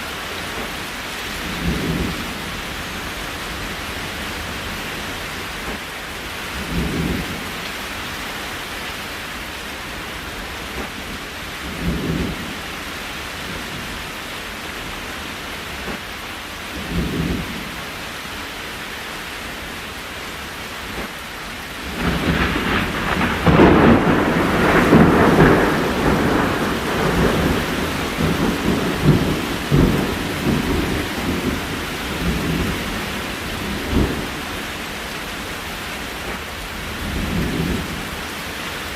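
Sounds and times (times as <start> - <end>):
steady rain hiss: 0.0 - 38.9
thunder rumbling: 1.4 - 5.0, 10.8 - 12.7, 21.8 - 38.4.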